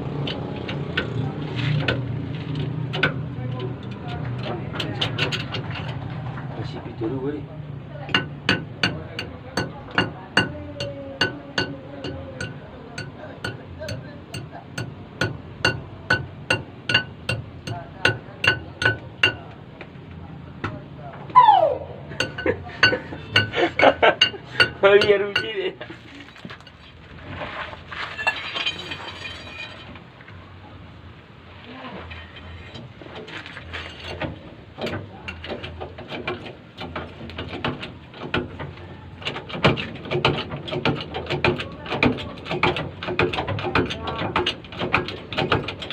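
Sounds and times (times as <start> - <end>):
tools knocking on tire rim: 0.2 - 2.1, 2.9 - 6.0, 8.1 - 20.0, 22.2 - 25.8, 34.0 - 45.9
hammer ringing on steel rim: 8.1 - 19.4.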